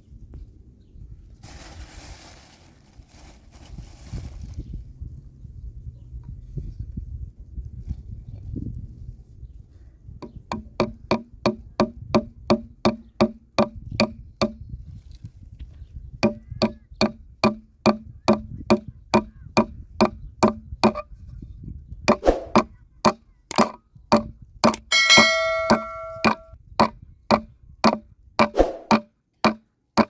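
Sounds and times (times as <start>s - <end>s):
hammer striking wood: 10.2s - 14.6s, 16.2s - 21.0s, 22.1s - 30.0s.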